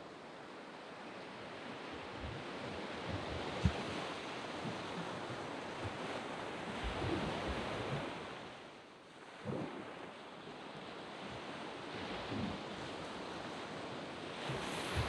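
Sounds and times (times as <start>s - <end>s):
wind bumps on microphone: 2.1s - 6.1s, 6.7s - 8.2s, 9.4s - 9.9s, 11.9s - 13.1s, 14.4s - 15.0s.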